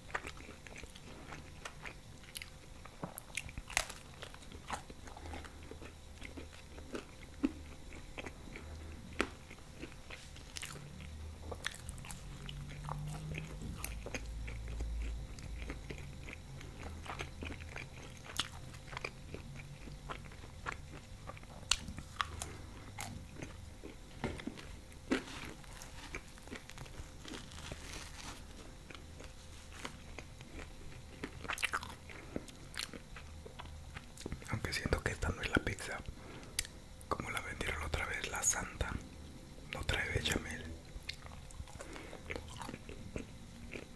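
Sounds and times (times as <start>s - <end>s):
wet chewing sounds: 0.0s - 35.1s, 41.0s - 43.9s
crust crunching: 21.7s - 32.2s.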